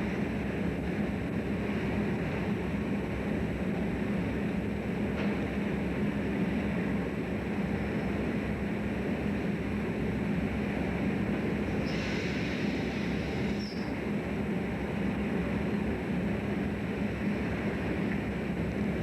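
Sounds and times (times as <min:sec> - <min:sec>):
engine and machinery noise: 0:00.0 - 0:19.0
high hiss: 0:11.8 - 0:13.9.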